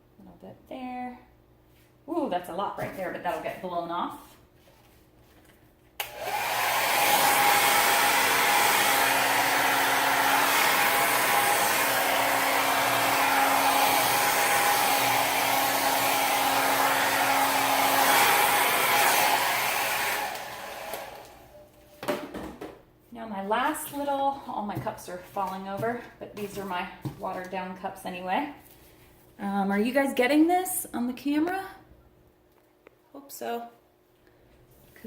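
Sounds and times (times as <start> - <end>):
hair dryer running: 6.0 - 21.6.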